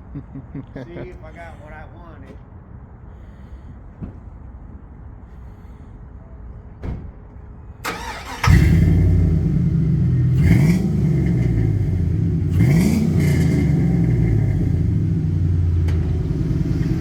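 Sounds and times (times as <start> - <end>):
engine rumble: 0.0 - 17.0
engine revving loudly: 7.9 - 17.0.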